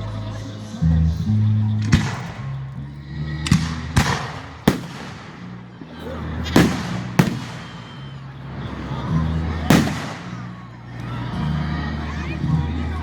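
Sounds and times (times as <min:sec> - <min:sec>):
fireworks bursting: 0:03.5 - 0:08.2, 0:09.6 - 0:10.6.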